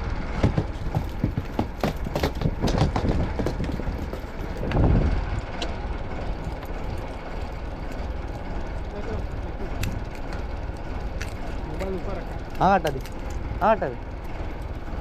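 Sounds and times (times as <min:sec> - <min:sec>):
boat engine rumble: 0:00.0 - 0:15.0
knocks: 0:00.4 - 0:04.8.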